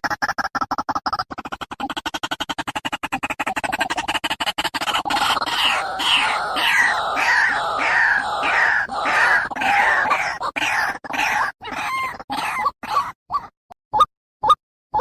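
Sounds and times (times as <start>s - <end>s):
bird harsh croaking calls: 1.5s - 13.2s.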